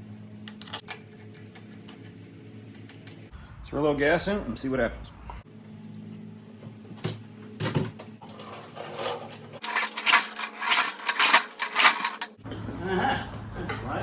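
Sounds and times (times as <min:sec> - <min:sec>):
lawnmower rapid rattling: 0:08.5 - 0:12.4.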